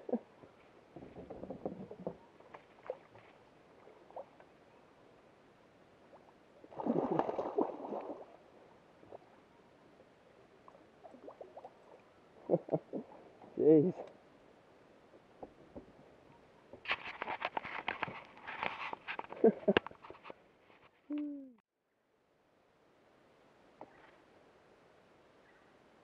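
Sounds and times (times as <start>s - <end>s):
water sloshing around a kayak: 0.0s - 13.5s.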